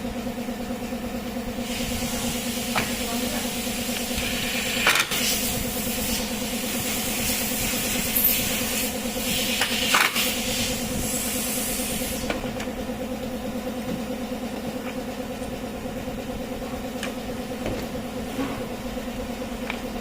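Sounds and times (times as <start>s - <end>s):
hiss: 1.6s - 12.4s.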